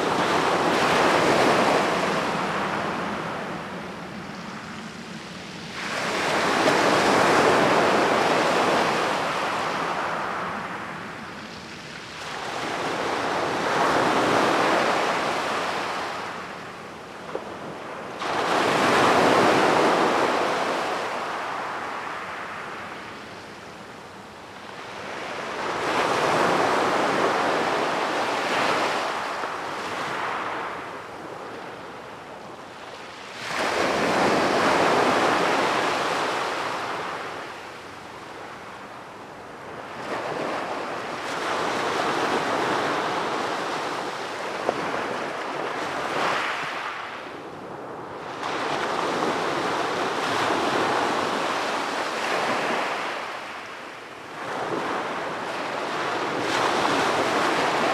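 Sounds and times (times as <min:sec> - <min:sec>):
ocean waves breaking: 0:33.1 - 0:37.8.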